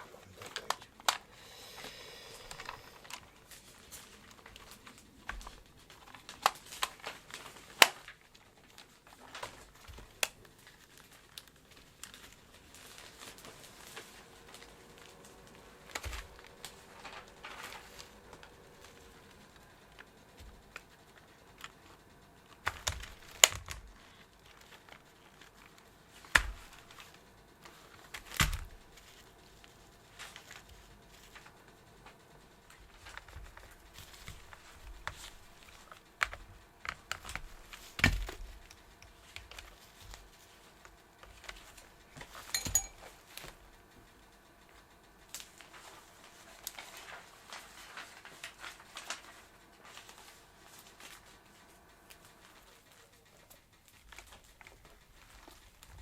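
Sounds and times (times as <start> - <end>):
plastic parts clicking and knocking: 22.6 - 29.2, 32.7 - 40.2.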